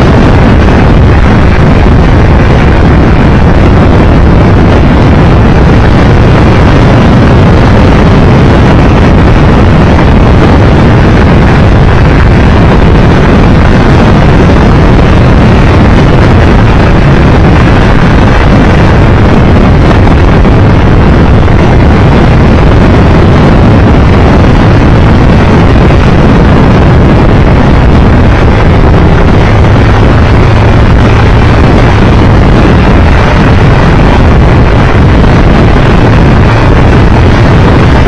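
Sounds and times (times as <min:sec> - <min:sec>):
motorcycle engine running: 0:00.0 - 0:38.0
wind roar on microphone: 0:00.0 - 0:38.0.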